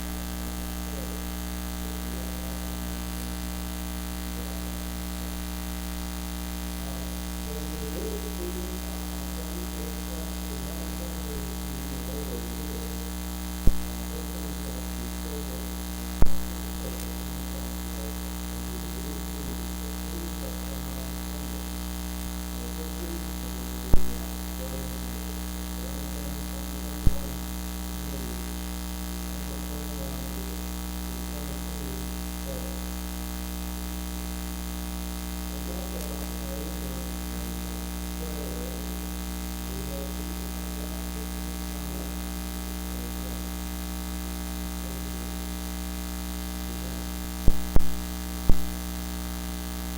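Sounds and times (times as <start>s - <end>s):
electrical mains hum: 0.0s - 49.9s
sharp pops: 13.6s - 14.0s, 16.2s - 17.2s, 23.9s - 24.2s, 47.4s - 48.8s.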